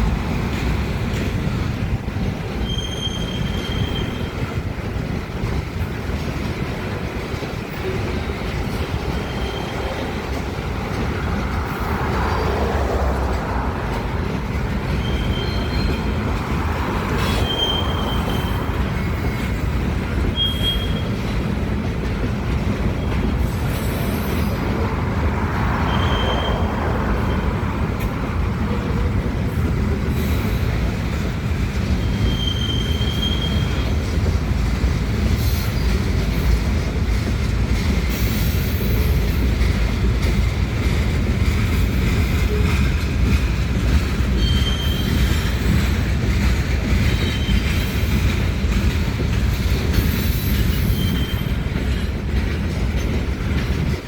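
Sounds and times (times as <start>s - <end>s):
freight train rumbling past: 0.0s - 54.0s
high wheel squeals: 2.5s - 4.5s, 9.1s - 10.2s, 14.9s - 19.6s, 20.2s - 21.2s, 25.6s - 27.8s, 31.9s - 34.0s, 44.2s - 46.0s, 47.0s - 48.5s, 49.6s - 52.2s.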